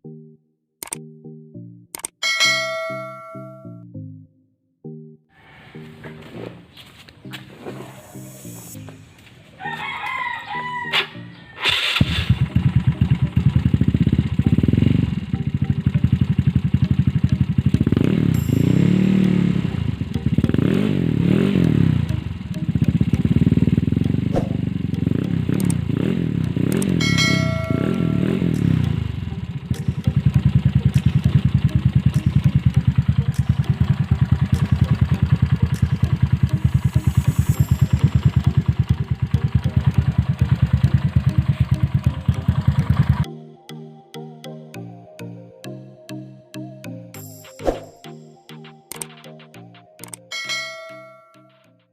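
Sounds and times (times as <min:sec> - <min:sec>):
scooter engine idling and revving: 0:11.6 - 0:43.3.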